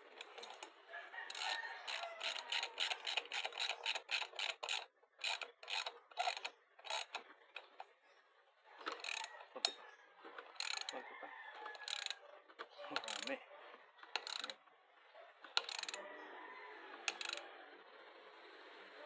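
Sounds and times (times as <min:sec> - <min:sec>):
ratchet wrench clicking: 0:01.3 - 0:07.8, 0:08.9 - 0:09.8, 0:10.6 - 0:11.0, 0:11.8 - 0:12.2, 0:13.0 - 0:13.3, 0:14.1 - 0:14.6, 0:15.6 - 0:16.0, 0:17.0 - 0:17.4.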